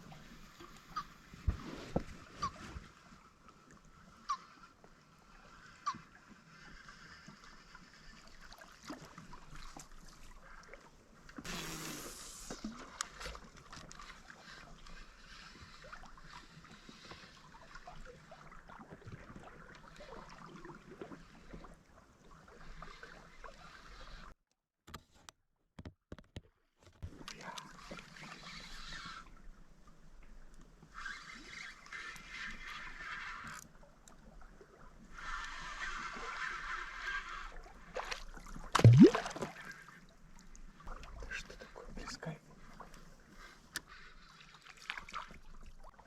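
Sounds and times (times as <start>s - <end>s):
faint water and boat noise: 0.0s - 24.4s, 26.4s - 46.0s
small knocks and clicks: 24.8s - 27.0s.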